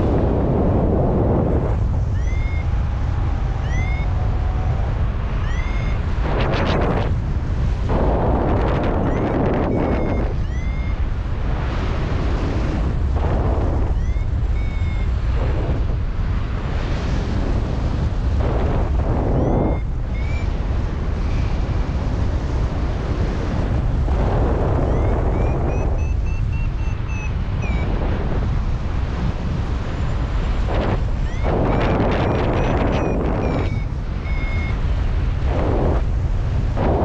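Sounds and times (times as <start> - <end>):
strong wind buffeting microphone: 0.0 - 37.0
short high variometer beeps: 2.1 - 2.7, 3.6 - 4.2, 5.4 - 6.1, 9.0 - 11.1, 13.9 - 15.2, 19.3 - 20.6, 24.8 - 28.0, 31.2 - 34.8.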